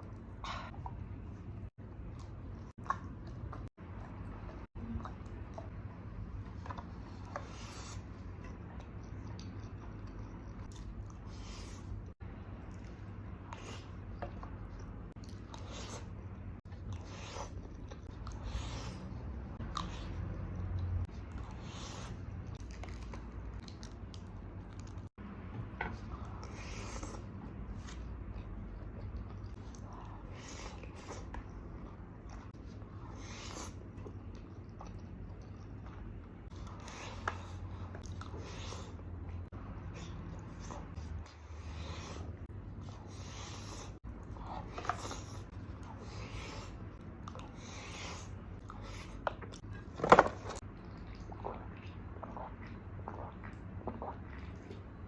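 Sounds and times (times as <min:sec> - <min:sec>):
soft chewing: 0:00.0 - 0:55.0.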